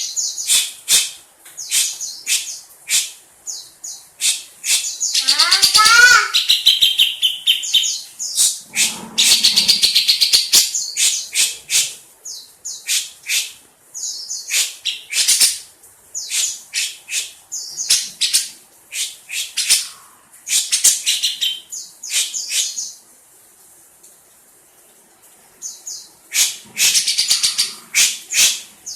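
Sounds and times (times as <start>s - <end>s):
bird chattering calls: 4.2s - 11.9s, 26.3s - 28.9s.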